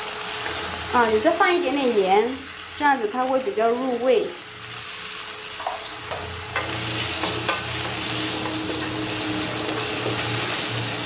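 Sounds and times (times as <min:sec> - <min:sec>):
tofu sizzling in oil: 0:00.0 - 0:11.0
spatula tapping and scraping pan: 0:05.6 - 0:09.1.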